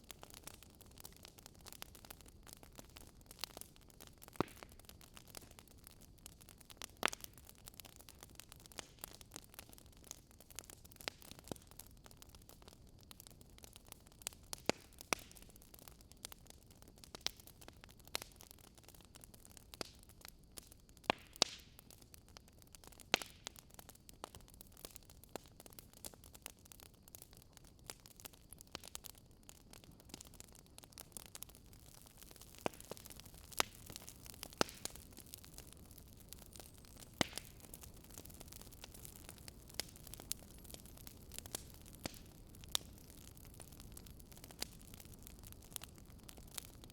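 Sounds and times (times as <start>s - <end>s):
campfire crackling: 0.0s - 46.9s.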